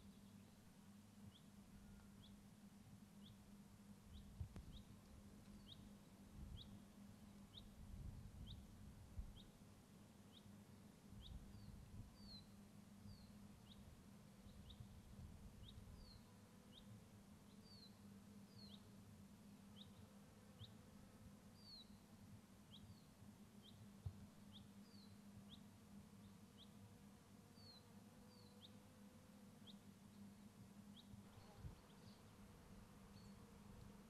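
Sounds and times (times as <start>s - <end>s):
small bird chirping: 4.1s - 6.8s, 11.2s - 13.8s, 24.4s - 26.8s.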